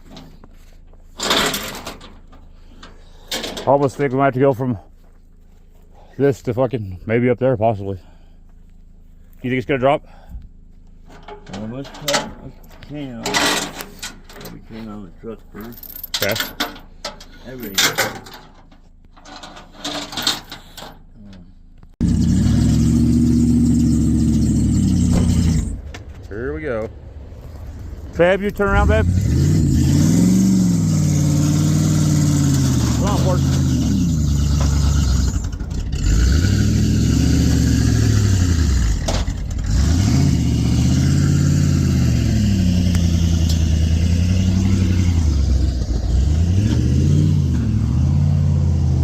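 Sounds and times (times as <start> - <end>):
pickup truck engine running: 21.6 - 49.0.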